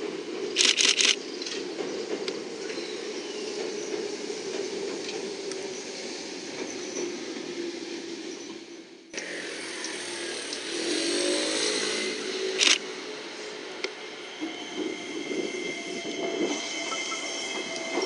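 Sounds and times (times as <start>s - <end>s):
electric train rumbling over bridge: 0.0s - 18.0s
rising tones: 9.2s - 18.0s.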